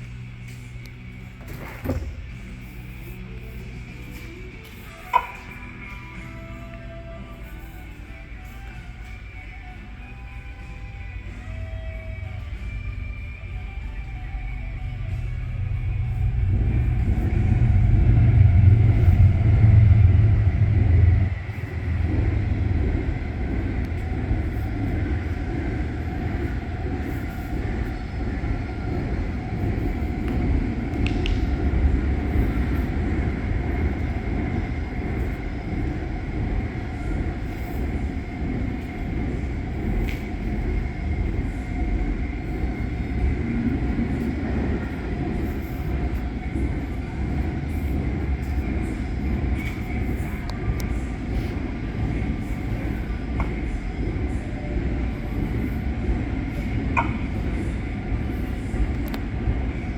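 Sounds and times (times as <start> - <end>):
pickup truck engine rumbling: 11.4 - 57.6.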